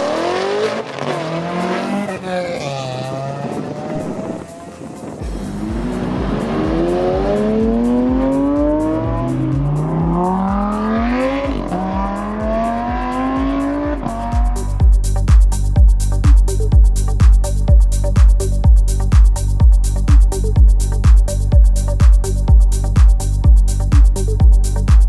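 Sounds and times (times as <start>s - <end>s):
car engine accelerating: 0.0s - 19.2s
music with steady beat: 0.0s - 25.0s.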